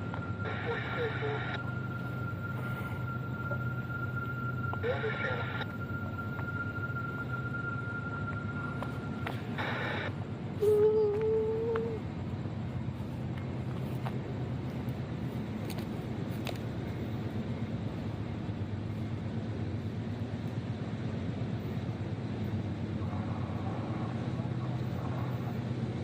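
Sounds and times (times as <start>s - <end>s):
horn-like tone: 0.0s - 10.3s
train rumbling past: 0.0s - 26.0s.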